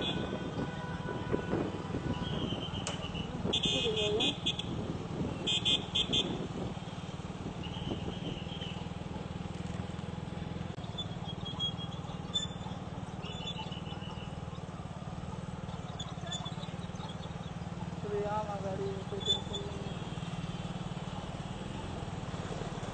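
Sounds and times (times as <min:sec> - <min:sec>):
car horn: 0:00.0 - 0:06.6, 0:07.6 - 0:08.9
low traffic engine hum: 0:00.0 - 0:22.9.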